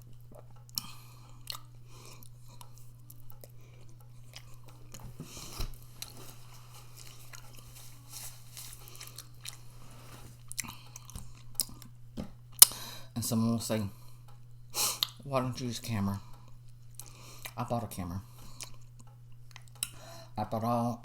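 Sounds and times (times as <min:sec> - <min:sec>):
mouth clicks and crunches: 0:00.0 - 0:09.8, 0:10.4 - 0:12.9, 0:18.5 - 0:20.0
person chewing food: 0:00.0 - 0:13.1, 0:14.1 - 0:15.2, 0:16.2 - 0:17.6, 0:18.3 - 0:20.1.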